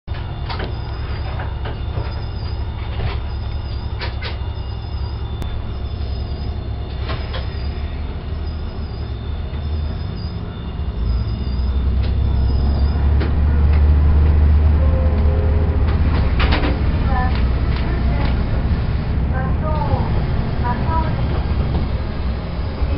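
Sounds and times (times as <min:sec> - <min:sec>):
railcar engine droning: 0:00.1 - 0:22.9
train wheels clacking: 0:15.0 - 0:18.6, 0:19.6 - 0:22.9.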